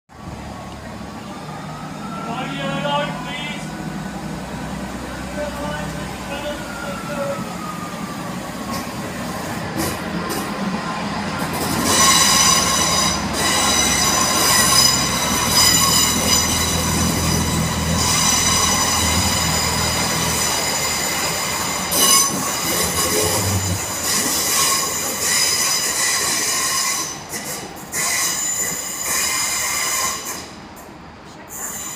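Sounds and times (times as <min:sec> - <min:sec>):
diesel engine hum: 0:00.1 - 0:24.1
train wheels squealing: 0:11.6 - 0:31.9.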